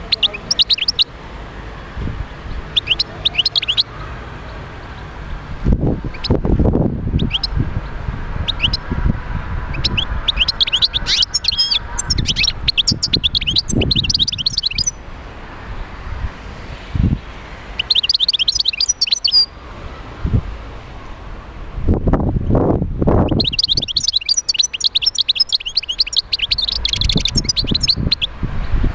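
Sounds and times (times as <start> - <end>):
goldfinch twittering song: 0.0 - 1.1, 2.5 - 4.0, 6.1 - 6.4, 7.2 - 8.9, 9.7 - 15.0, 17.8 - 19.6, 23.2 - 28.8.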